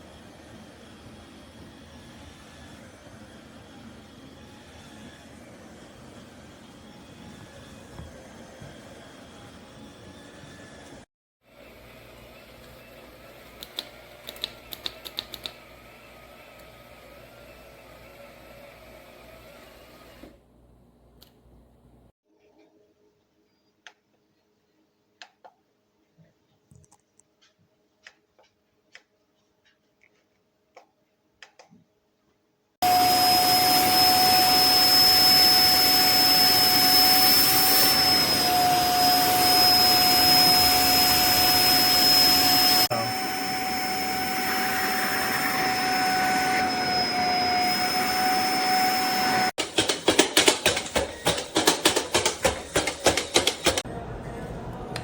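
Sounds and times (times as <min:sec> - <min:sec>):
electric spin mop motor whining: 0:00.0 - 0:14.2, 0:32.8 - 0:53.9.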